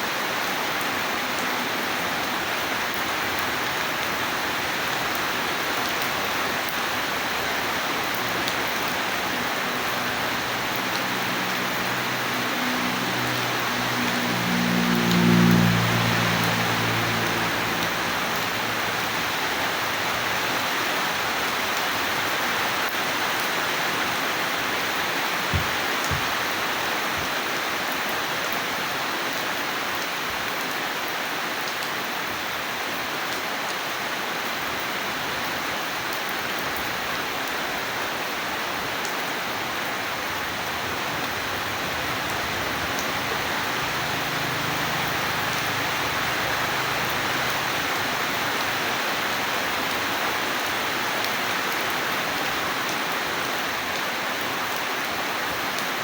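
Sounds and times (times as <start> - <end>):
steady rain hiss: 0.0 - 56.0
low thumps: 25.4 - 26.5.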